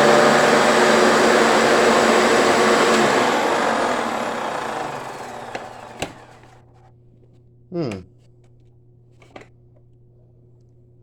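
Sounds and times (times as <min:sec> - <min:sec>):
vacuum cleaner running: 0:00.0 - 0:06.6.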